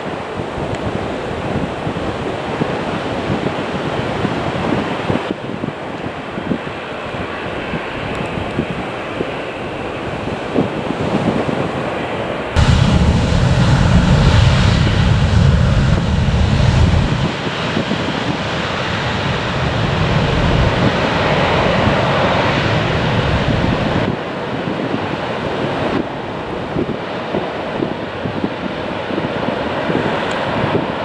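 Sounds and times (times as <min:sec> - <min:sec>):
wind buffeting microphone: 0:00.0 - 0:31.0
jet engines roaring: 0:07.5 - 0:31.0.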